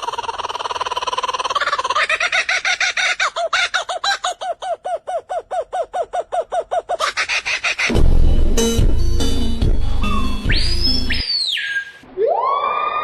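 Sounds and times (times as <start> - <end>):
bird calling repeated notes: 10.0 - 12.0.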